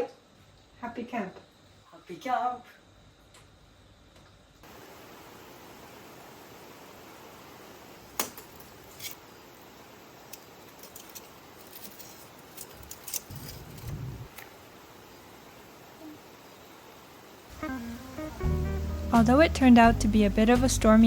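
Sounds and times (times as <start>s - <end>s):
steady hiss: 1.5s - 21.0s
small objects clicking and clinking: 10.3s - 14.0s.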